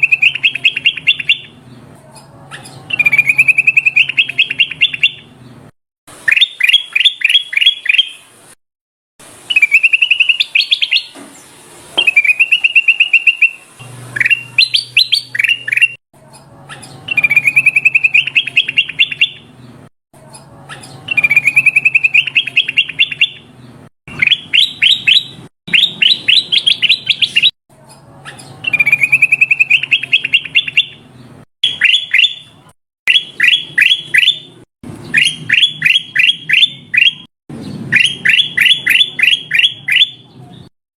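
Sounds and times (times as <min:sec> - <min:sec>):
bulbul singing: 0:00.0 - 0:05.6, 0:06.2 - 0:08.4, 0:09.4 - 0:19.8, 0:20.4 - 0:40.7.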